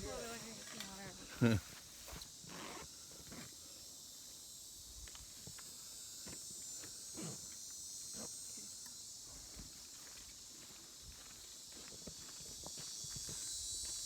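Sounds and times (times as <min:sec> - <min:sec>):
insects chorus: 0:00.0 - 0:14.0
footsteps on trail: 0:09.4 - 0:14.0.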